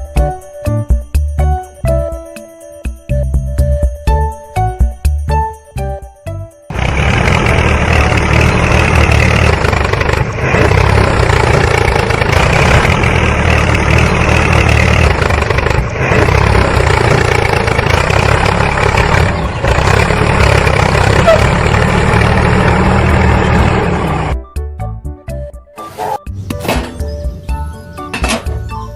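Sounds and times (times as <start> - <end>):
engine deep rumble: 6.7 - 24.5.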